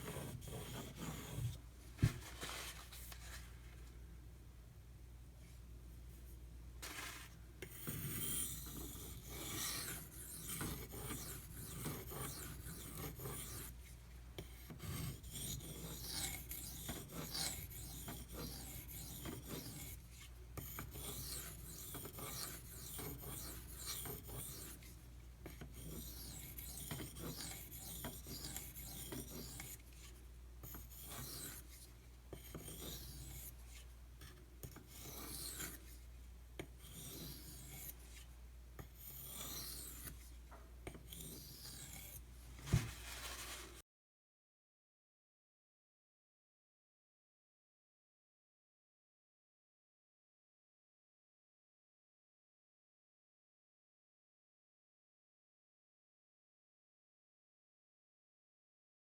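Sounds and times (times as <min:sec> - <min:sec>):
knife scraping on sharpening stone: 0:00.0 - 0:01.5, 0:07.7 - 0:13.7, 0:14.6 - 0:20.0, 0:20.6 - 0:24.8, 0:25.5 - 0:30.0, 0:30.6 - 0:35.8, 0:36.8 - 0:38.2, 0:38.8 - 0:40.2, 0:40.9 - 0:42.2.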